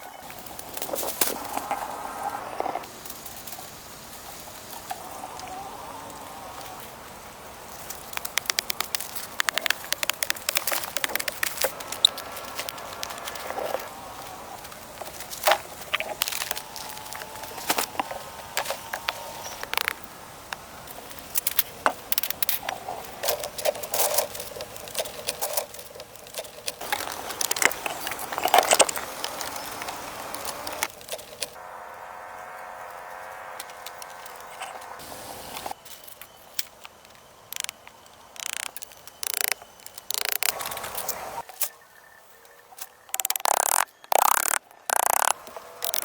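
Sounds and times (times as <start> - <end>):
bamboo knocking and rattling: 7.8 - 13.2, 43.1 - 46.0.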